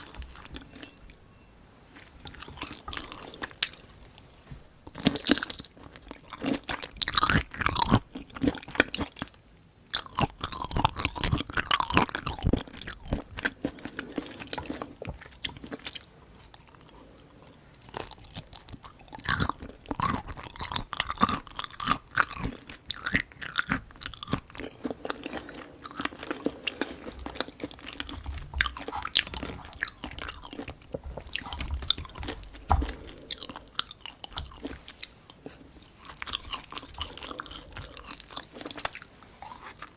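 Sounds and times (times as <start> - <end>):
person chewing and crunching food: 0.0 - 1.2, 1.8 - 39.9.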